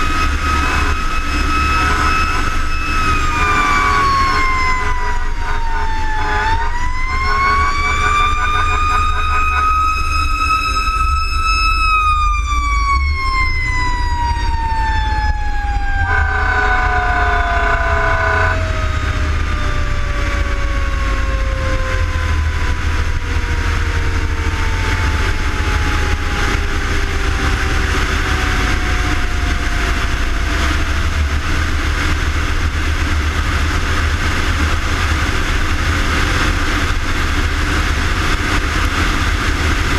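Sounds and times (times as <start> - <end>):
horn blast: 0.0 - 10.2, 15.8 - 18.9
fire engine siren winding: 0.0 - 31.6
truck engine rumbling: 0.0 - 39.9.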